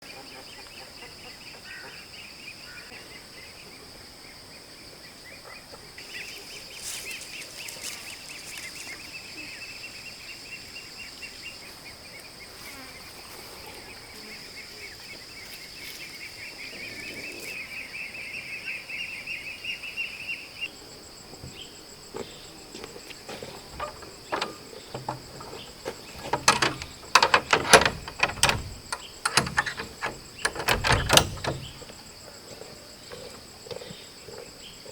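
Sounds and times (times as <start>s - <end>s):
insects droning: 0.2s - 34.9s
sharp knocks and clatter: 23.3s - 32.0s.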